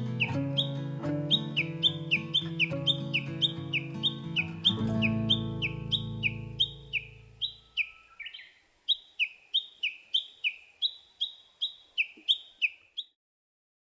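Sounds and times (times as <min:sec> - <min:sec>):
background music: 0:00.0 - 0:07.6
short descending chirping calls: 0:00.0 - 0:13.2.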